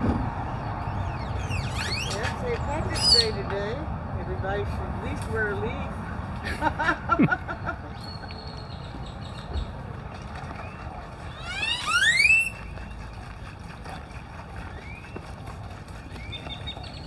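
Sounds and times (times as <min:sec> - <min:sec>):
short chirping bird notes: 0:00.4 - 0:03.4
upward whistled bird call: 0:00.5 - 0:03.4, 0:10.6 - 0:13.0.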